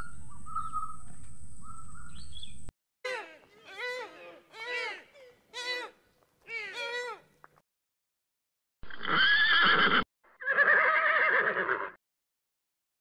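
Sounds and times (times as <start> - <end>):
deer calling: 3.1 - 7.3
horse neighing: 8.9 - 12.0.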